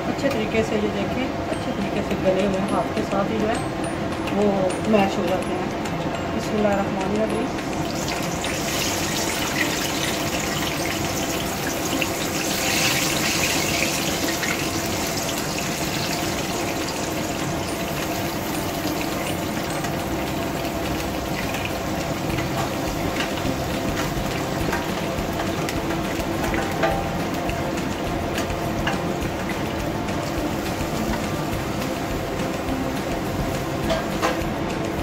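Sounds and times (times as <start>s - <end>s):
spatula scraping and ticking: 4.2s - 34.4s
food sizzling in a wok: 7.1s - 35.0s.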